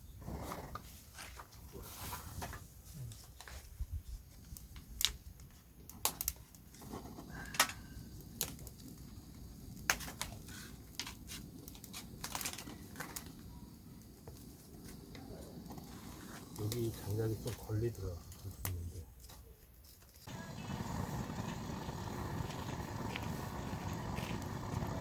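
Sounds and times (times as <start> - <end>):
objects clicking and crinkling: 4.4 - 9.1, 9.8 - 13.5, 18.3 - 20.3.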